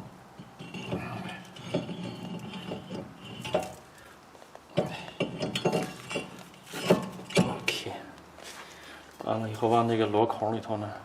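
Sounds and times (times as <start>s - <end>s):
metal clinks and knocks: 0.4s - 3.9s, 4.7s - 7.8s.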